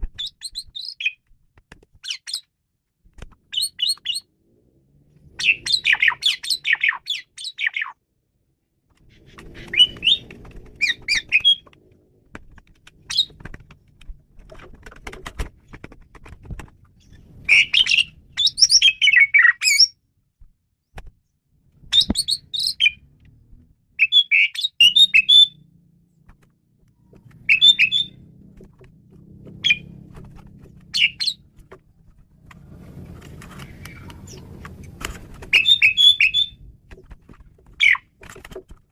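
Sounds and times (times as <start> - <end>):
starling singing: 5.3 - 8.0, 9.1 - 11.7, 13.0 - 13.4, 17.0 - 20.0, 21.9 - 23.1, 23.9 - 25.6, 27.2 - 28.3, 29.5 - 30.0, 30.7 - 31.6, 35.4 - 36.7, 37.8 - 38.1.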